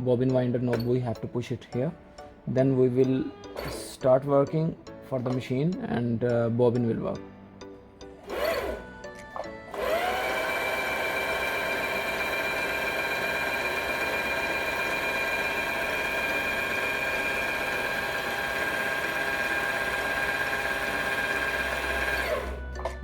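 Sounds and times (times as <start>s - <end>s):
sewing machine motor whining: 8.2s - 23.0s.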